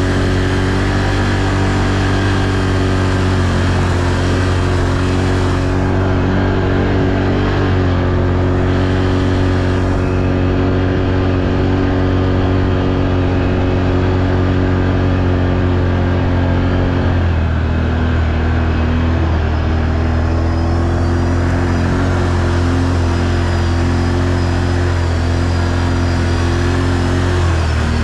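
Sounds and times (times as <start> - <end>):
quad bike engine running: 0.0 - 28.0.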